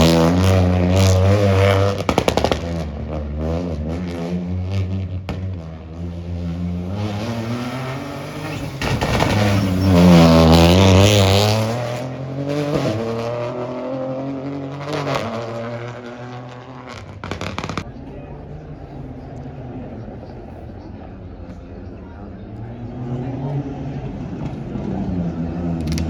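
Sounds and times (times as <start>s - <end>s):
rally car engine passing: 0.0s - 25.9s.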